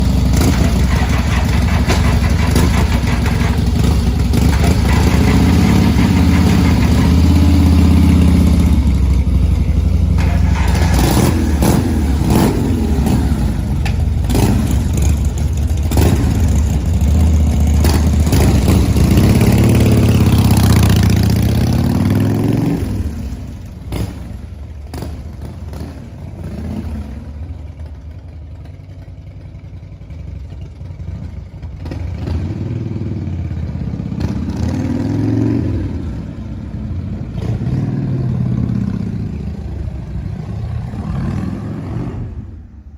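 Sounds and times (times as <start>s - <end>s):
car engine cranking and starting: 10.1s - 14.5s.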